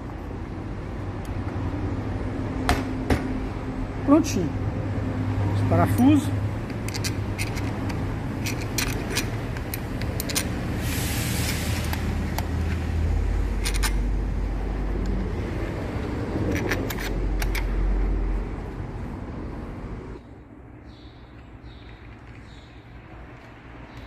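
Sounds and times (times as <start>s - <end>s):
metal tool clicks and taps: 5.9s - 10.6s, 13.6s - 14.0s, 16.4s - 17.8s
short hiss: 10.8s - 11.9s.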